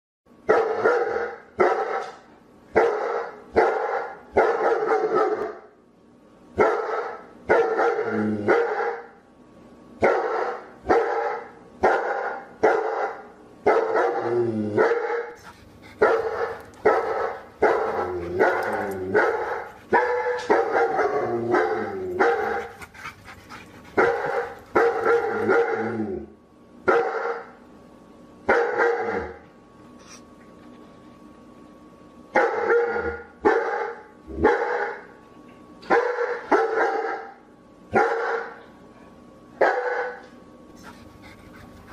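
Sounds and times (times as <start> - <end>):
dog barking: 0.5 - 5.7, 6.6 - 9.1, 10.0 - 22.9, 23.9 - 25.9, 26.9 - 27.5, 28.5 - 29.4, 32.4 - 35.1, 35.9 - 38.6, 39.6 - 41.0.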